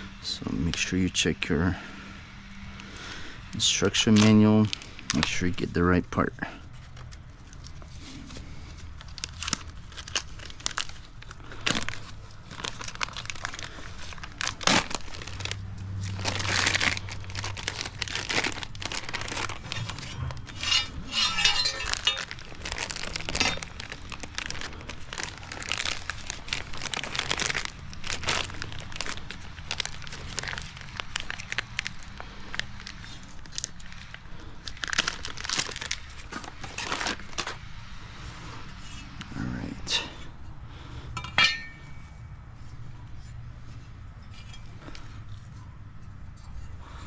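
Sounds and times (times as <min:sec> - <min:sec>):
packaging crinkling and tearing: 0:03.6 - 0:05.8, 0:06.6 - 0:37.8.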